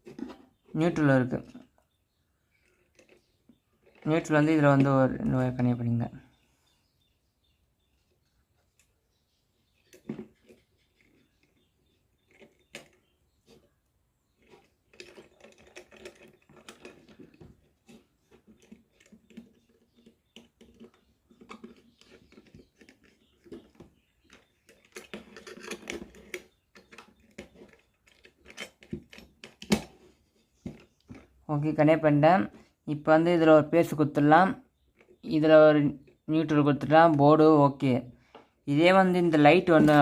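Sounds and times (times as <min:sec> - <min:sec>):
rustling of handled parts: 0:14.4 - 0:31.4.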